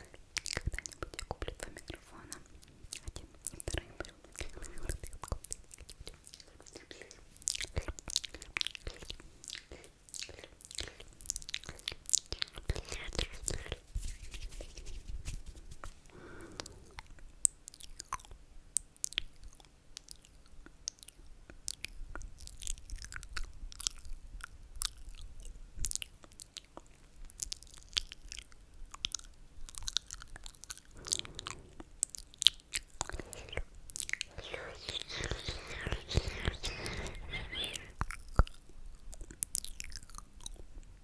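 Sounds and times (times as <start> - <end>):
lip and tongue clicks: 0.0 - 13.8, 27.4 - 40.7
soft breathy slurps: 0.0 - 15.0, 30.6 - 38.6.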